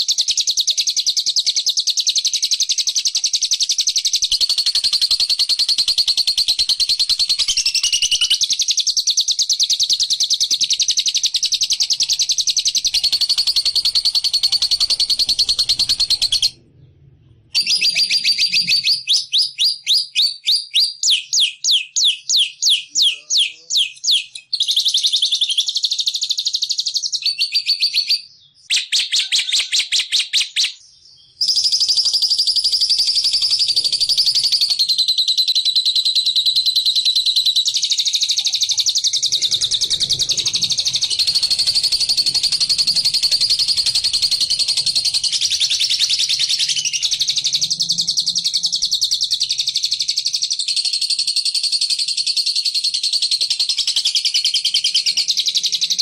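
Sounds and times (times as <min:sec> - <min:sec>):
songbird rapid trilling: 0:38.9 - 0:47.8.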